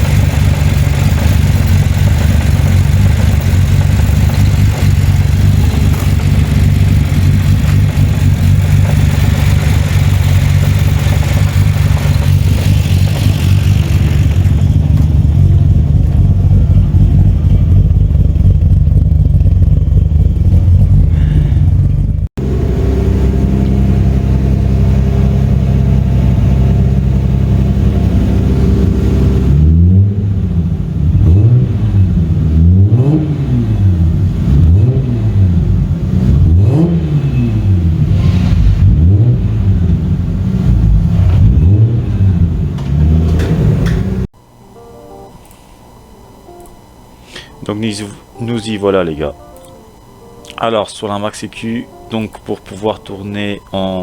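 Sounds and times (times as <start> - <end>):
engine revving: 0.0 - 44.3
car engine idling: 0.0 - 45.6.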